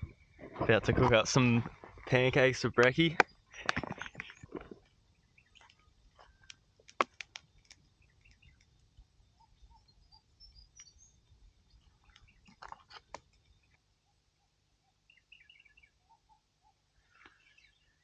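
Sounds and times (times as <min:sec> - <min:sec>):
faint bird chirps: 0:07.4 - 0:18.0.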